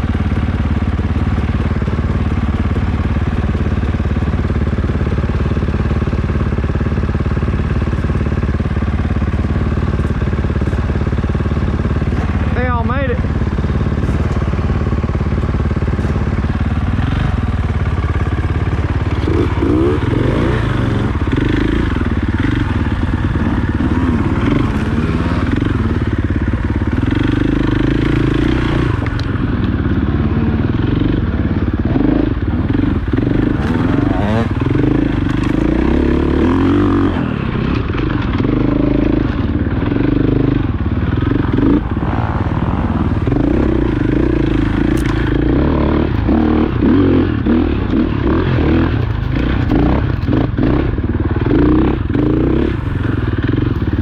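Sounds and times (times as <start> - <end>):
motorcycle engine revving: 0.0 - 54.0
bike clattering over dirt: 13.6 - 40.4, 41.0 - 50.7.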